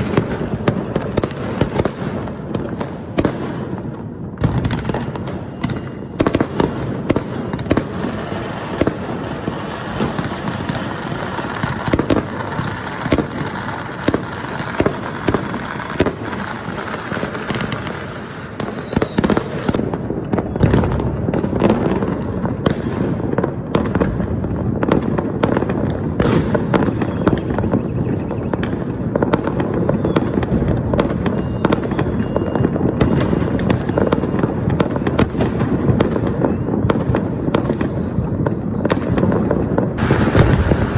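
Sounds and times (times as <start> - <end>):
firecrackers and fireworks banging: 0.0 - 40.9.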